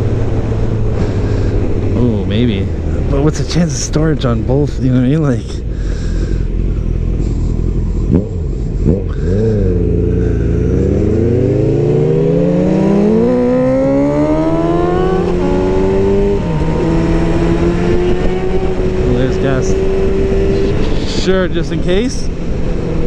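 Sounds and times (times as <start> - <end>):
rushing wind: 0.0 - 23.0
motorcycle engine accelerating: 4.9 - 23.0.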